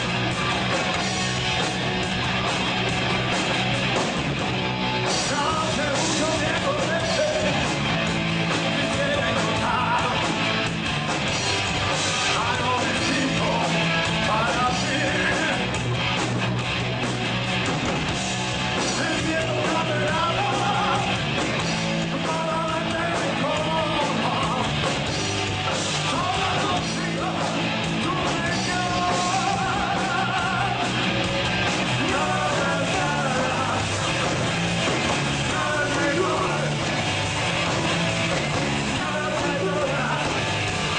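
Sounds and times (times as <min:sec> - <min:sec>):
drums: 0:00.0 - 0:40.9
guitar: 0:00.0 - 0:40.9
sustained bass notes: 0:00.0 - 0:40.9
person singing: 0:26.1 - 0:30.9, 0:31.9 - 0:34.0, 0:35.4 - 0:36.8, 0:38.9 - 0:40.6.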